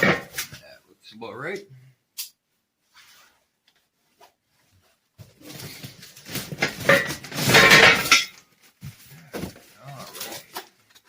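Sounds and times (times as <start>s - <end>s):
metal parts rattling and rustling: 5.3s - 8.4s, 9.3s - 11.0s.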